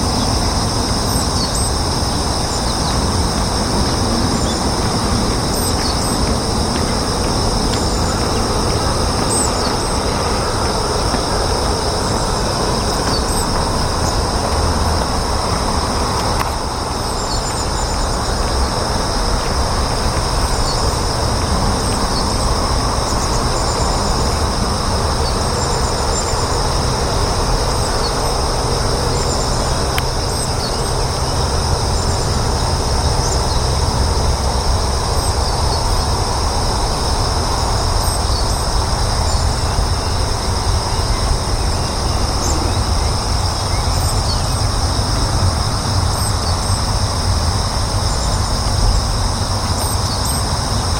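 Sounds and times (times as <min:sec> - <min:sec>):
loud low rumble: 0:00.0 - 0:38.0
insects singing high tones: 0:00.0 - 0:50.9.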